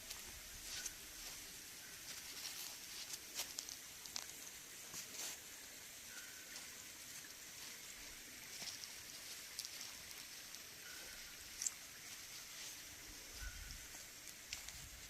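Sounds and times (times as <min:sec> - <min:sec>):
soft steady hiss: 0:00.0 - 0:15.0
light ticks and clicks: 0:02.1 - 0:05.1, 0:08.6 - 0:11.9, 0:13.4 - 0:14.9.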